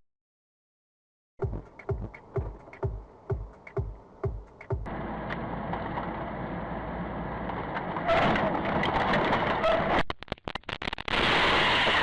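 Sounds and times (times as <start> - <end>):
car road and engine noise: 1.4 - 10.0
sharp clicks: 4.4 - 5.4.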